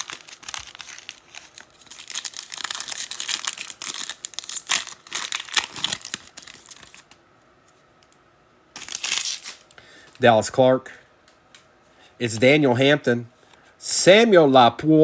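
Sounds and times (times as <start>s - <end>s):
foil wrappers tearing and crinkling: 0.0s - 7.2s, 8.8s - 9.8s.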